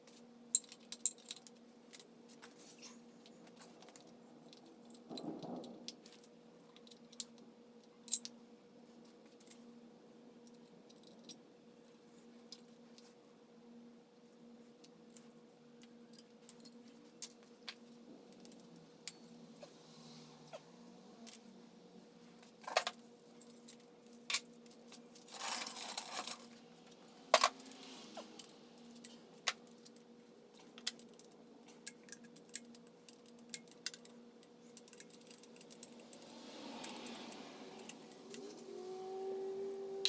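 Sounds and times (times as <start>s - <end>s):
metal tools clinking: 24.3s - 29.2s
scraping rustles: 24.8s - 29.3s.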